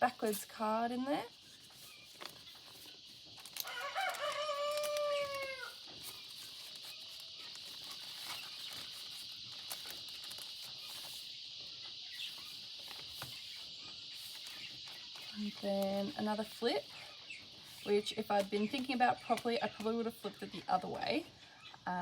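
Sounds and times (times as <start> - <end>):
steady high hiss: 0.0 - 19.4
paper pages turning: 1.3 - 11.3, 12.2 - 16.9
rooster crowing: 3.6 - 5.8.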